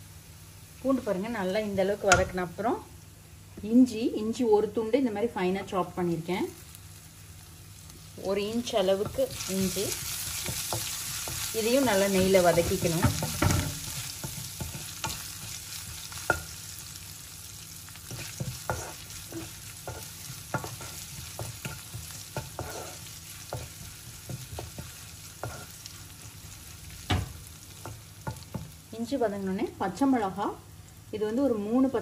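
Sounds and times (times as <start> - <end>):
garlic sizzling in a pan: 0.0 - 32.0
spatula scraping and tapping pan: 9.0 - 16.6, 18.0 - 25.9.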